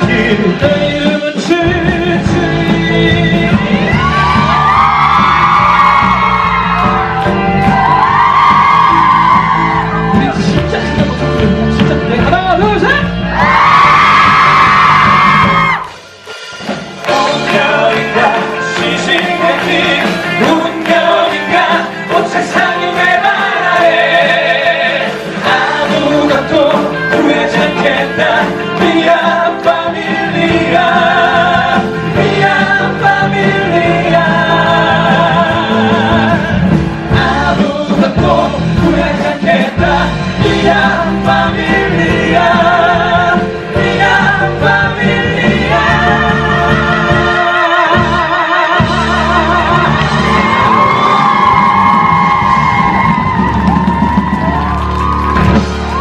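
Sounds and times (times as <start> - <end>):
men singing: 0.0 - 4.8, 17.0 - 51.4
instrumental accompaniment: 0.0 - 56.0.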